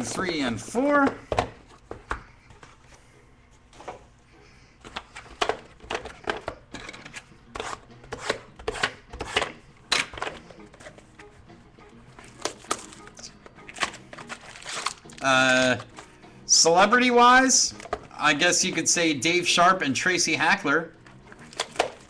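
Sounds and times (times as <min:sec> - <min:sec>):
cardboard and cards rustling: 0:12.2 - 0:16.1, 0:21.3 - 0:22.0.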